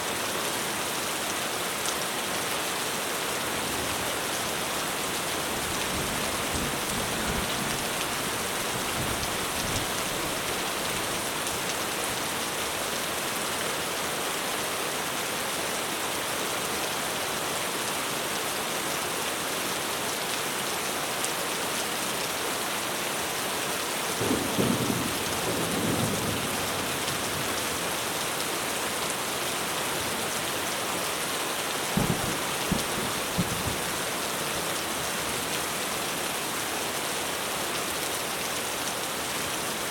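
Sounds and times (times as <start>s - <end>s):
heavy rain on a roof: 0.0s - 39.9s
thunder rumbling: 32.0s - 34.1s.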